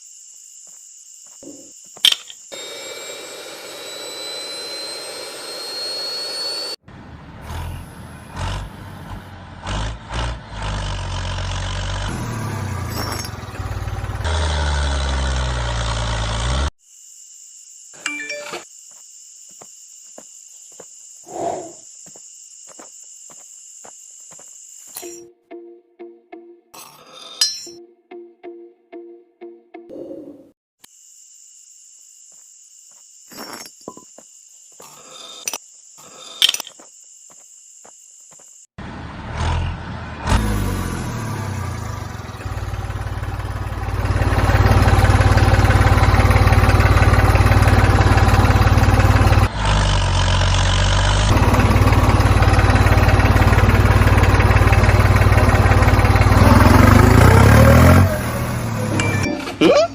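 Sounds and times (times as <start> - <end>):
faint high whine: 2.5 - 6.8
motor running loudly: 2.5 - 6.8, 40.3 - 59.2.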